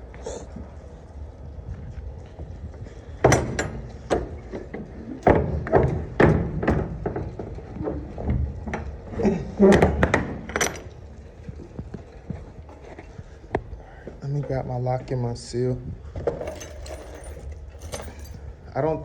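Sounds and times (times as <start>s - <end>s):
metal clanks and thuds: 16.3s - 18.4s.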